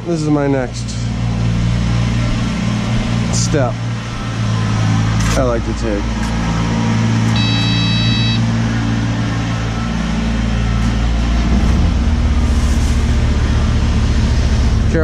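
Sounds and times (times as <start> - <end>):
excavator diesel engine running: 0.0 - 15.0
short high steady tone: 7.4 - 8.5.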